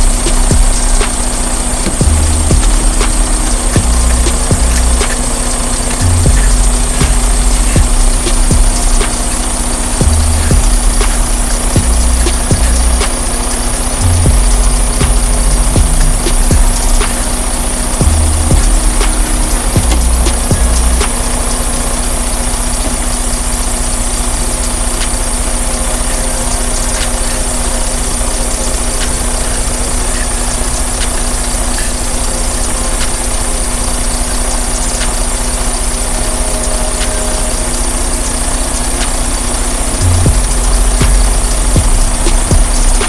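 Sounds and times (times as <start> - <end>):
diesel truck engine idling: 0.0 - 43.0.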